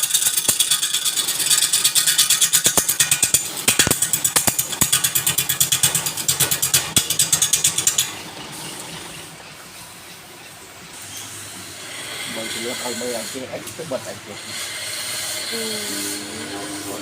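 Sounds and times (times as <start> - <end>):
rapid mechanical clicking: 0.0 - 9.2.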